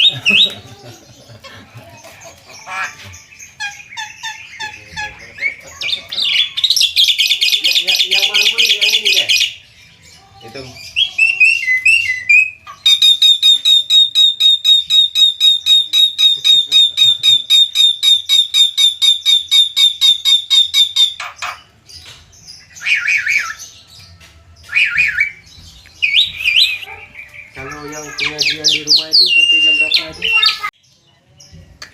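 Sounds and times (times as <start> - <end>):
bird calling harsh notes: 0.0 - 0.7, 2.4 - 9.7, 10.8 - 21.8, 24.7 - 30.7
bird warbled phrases: 0.0 - 21.8, 26.0 - 30.7.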